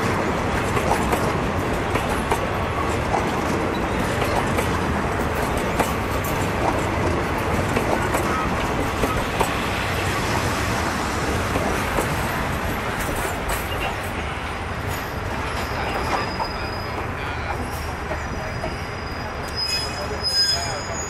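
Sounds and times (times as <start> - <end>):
train wheels rumbling: 0.0 - 21.0
faint high wheel squeal: 15.1 - 21.0.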